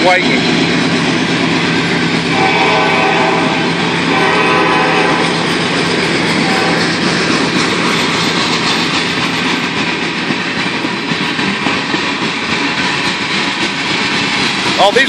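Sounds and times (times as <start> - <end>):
freight train cars rumbling past: 0.0 - 15.0
wheels clattering over rail joints: 4.2 - 15.0.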